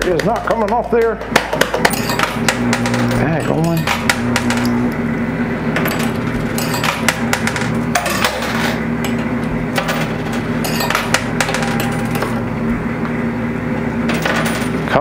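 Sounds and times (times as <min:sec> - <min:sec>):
machine hum: 0:00.0 - 0:15.0
coins clinking: 0:01.6 - 0:04.8, 0:05.8 - 0:12.5, 0:14.1 - 0:14.9.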